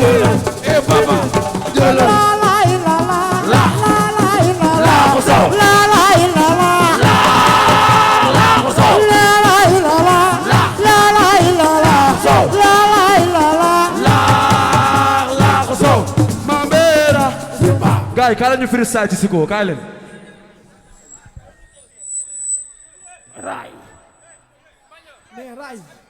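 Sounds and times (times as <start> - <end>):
person singing lead melody: 0.0 - 17.9
group chorus singing: 0.0 - 18.2
drum and shaker percussion: 0.0 - 18.3.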